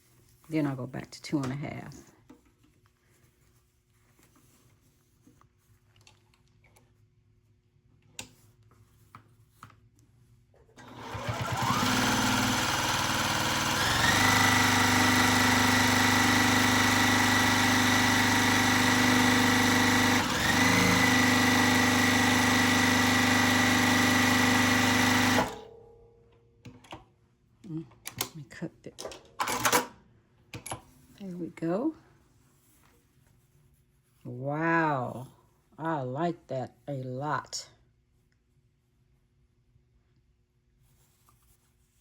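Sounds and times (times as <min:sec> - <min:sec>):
sewing machine running: 0:10.8 - 0:25.7.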